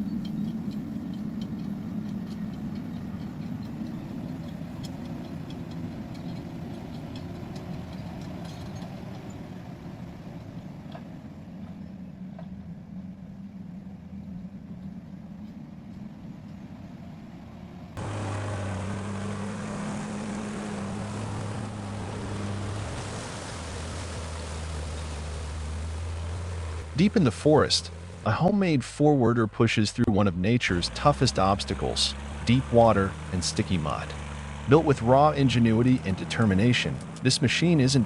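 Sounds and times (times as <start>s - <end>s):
diesel engine under load: 0.0s - 38.0s
steady machine engine: 0.0s - 38.0s.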